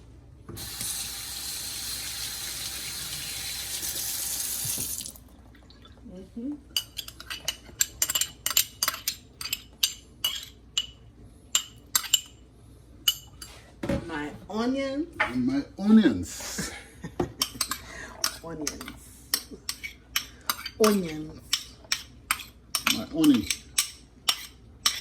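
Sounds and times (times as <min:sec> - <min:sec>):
kitchen tap running: 0:00.6 - 0:05.3
utensils and dishes clinking: 0:06.8 - 0:11.0, 0:11.6 - 0:12.4.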